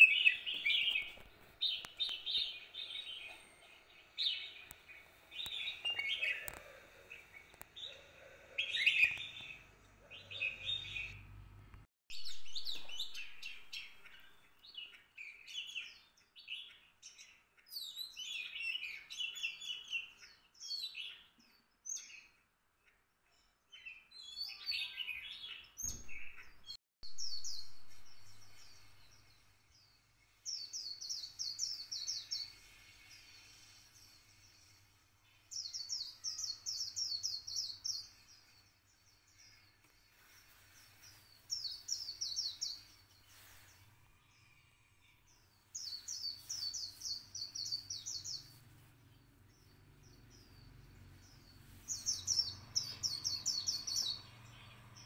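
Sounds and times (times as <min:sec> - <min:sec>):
songbirds chirping and twittering: 0:00.0 - 0:55.0.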